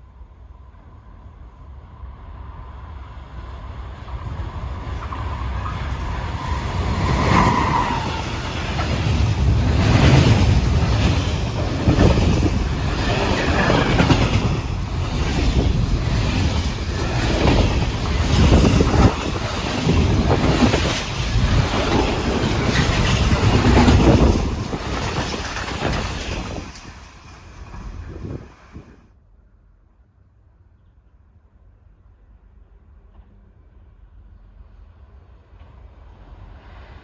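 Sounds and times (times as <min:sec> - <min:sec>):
train rumble: 0:00.0 - 0:29.1, 0:32.0 - 0:37.0
train wheels clattering over rail joints: 0:07.1 - 0:28.9.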